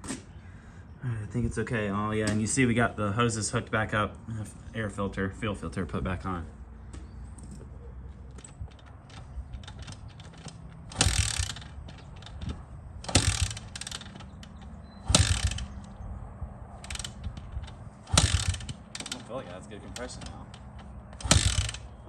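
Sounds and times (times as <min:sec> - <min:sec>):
kick-starter ratcheting clatter: 0:08.3 - 0:16.0, 0:16.8 - 0:22.0.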